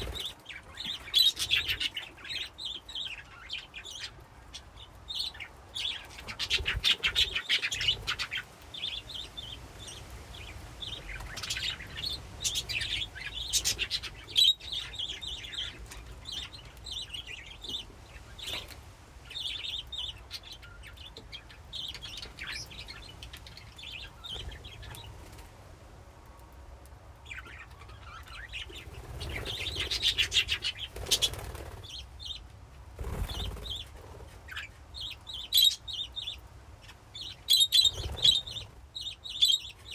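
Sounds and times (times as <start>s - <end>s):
budgerigars chirping and chattering: 0.0s - 25.4s, 27.3s - 32.4s, 33.0s - 39.9s.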